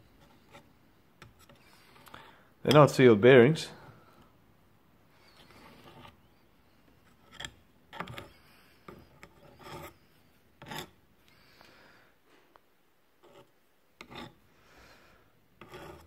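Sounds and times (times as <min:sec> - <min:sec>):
tool scraping metal gearhead: 0:07.0 - 0:11.0, 0:13.2 - 0:14.4, 0:15.6 - 0:16.0.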